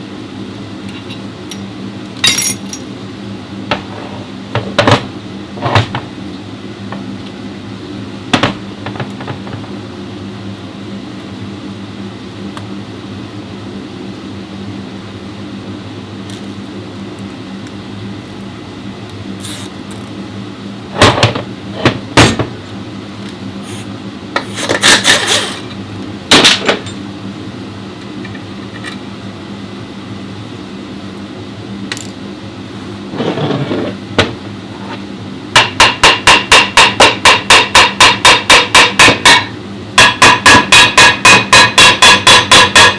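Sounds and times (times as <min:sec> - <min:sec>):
low machine hum: 0:00.0 - 0:42.9
hammer blows on metal: 0:35.6 - 0:42.9.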